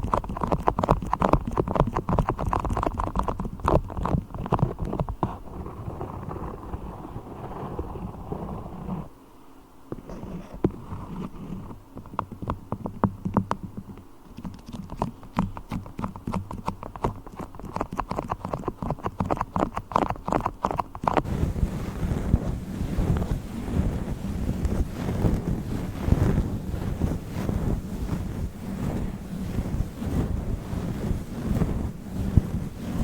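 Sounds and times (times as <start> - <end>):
sticky clicks of beeswax: 0.0 - 5.5, 10.0 - 21.3
microphone cover rubbing: 0.0 - 9.2, 9.9 - 33.0.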